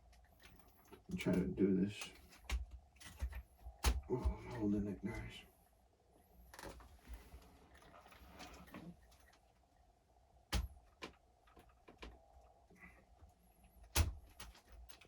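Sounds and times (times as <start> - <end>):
plastic parts clicking and knocking: 2.0 - 4.3, 10.5 - 12.3.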